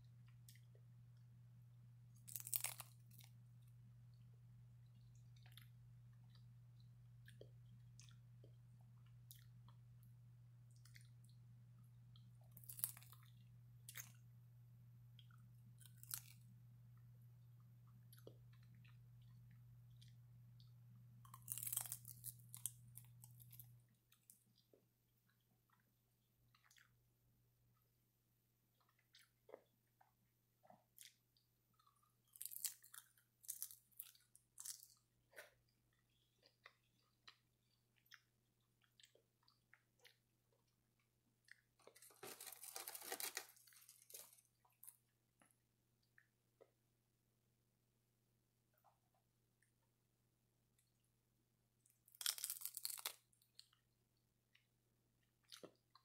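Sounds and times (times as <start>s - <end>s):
soft chewing: 0.0s - 1.4s, 2.1s - 28.0s, 28.6s - 46.9s, 51.7s - 56.0s
crisp crunching: 2.2s - 3.4s, 12.5s - 13.3s, 15.8s - 16.4s, 21.2s - 23.7s, 32.3s - 35.5s, 41.8s - 44.9s, 52.1s - 53.2s.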